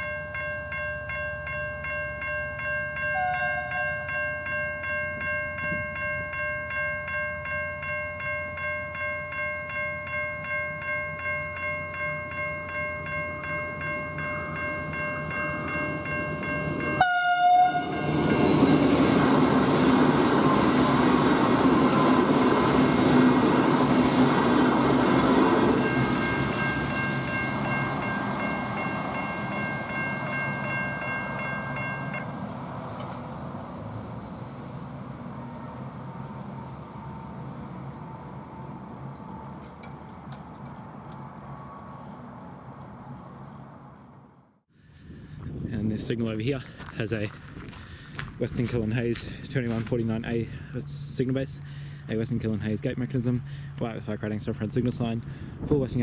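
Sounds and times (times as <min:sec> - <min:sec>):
level crossing bells ringing: 0:00.0 - 0:18.9, 0:24.8 - 0:32.3
train horn blast: 0:03.2 - 0:03.8, 0:17.0 - 0:18.2
train rushing past: 0:13.4 - 0:40.2.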